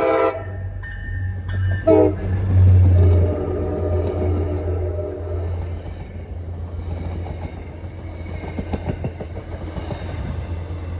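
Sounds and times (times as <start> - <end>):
train horn chord: 0.0 - 0.8, 1.8 - 5.5
train rumbling past: 0.0 - 10.9.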